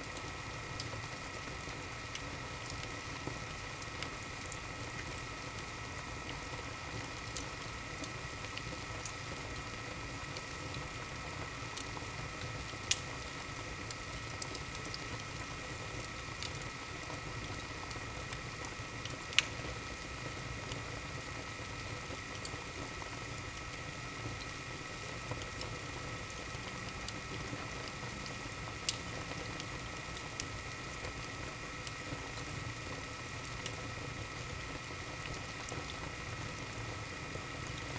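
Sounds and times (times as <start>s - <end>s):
wood fire crackling: 0.0s - 37.9s.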